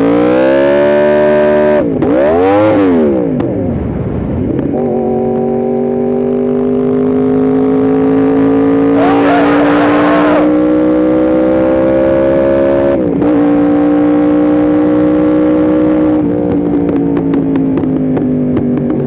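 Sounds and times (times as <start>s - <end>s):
motorcycle engine revving: 4.8s - 19.0s.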